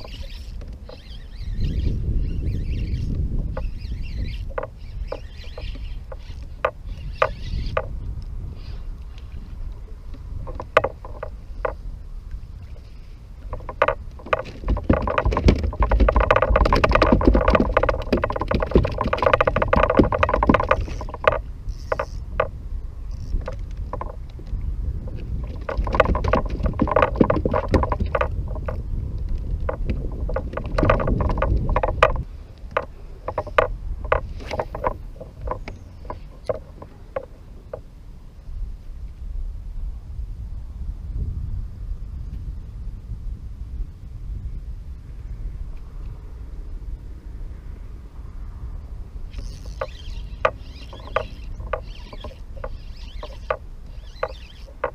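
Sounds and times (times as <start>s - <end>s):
knocks and clicks against hull: 0.0s - 1.8s, 2.4s - 8.3s, 9.7s - 37.9s, 49.3s - 54.9s
whirring and rattling: 0.0s - 8.3s, 12.6s - 37.9s, 49.2s - 54.9s.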